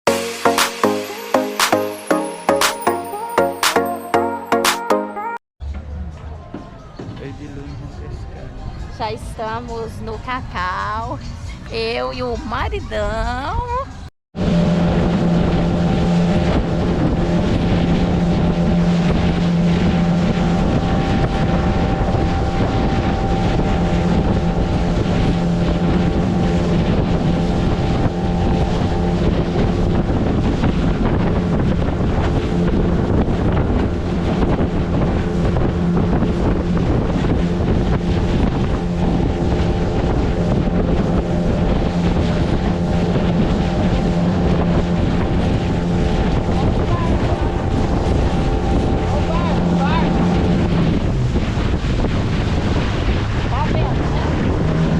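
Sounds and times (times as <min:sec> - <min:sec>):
motorboat engine humming: 0:00.1 - 0:54.9
wind buffeting microphone: 0:07.0 - 0:54.9
water rushing past hull: 0:14.4 - 0:54.9.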